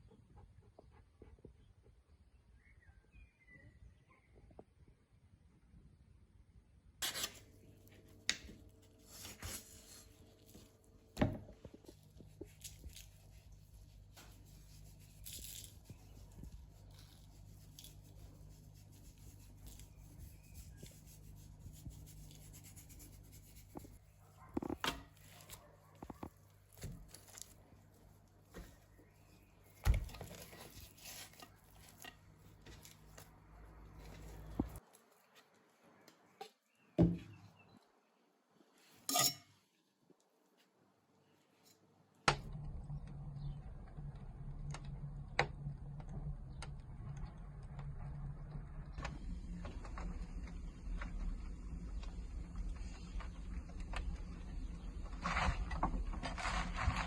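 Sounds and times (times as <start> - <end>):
tearing and rubbing handling noises: 7.0 - 36.4.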